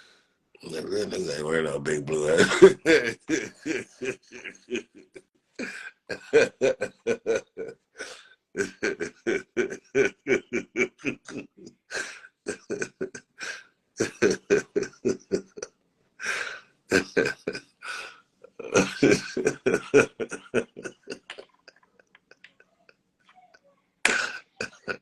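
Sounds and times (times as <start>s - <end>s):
person laughing hard: 2.1s - 15.6s, 16.2s - 21.7s, 24.1s - 25.0s.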